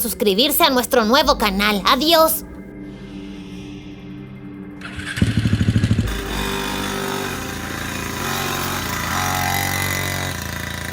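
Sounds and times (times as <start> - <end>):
motorcycle engine running: 4.8 - 10.9.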